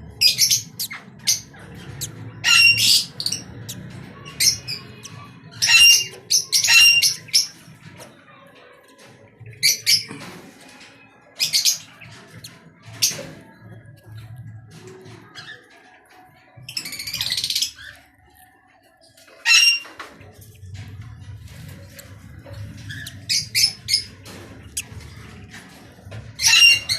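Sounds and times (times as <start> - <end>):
pet birds squawking: 0.0 - 7.8, 11.4 - 13.6, 19.4 - 20.0, 21.5 - 26.9.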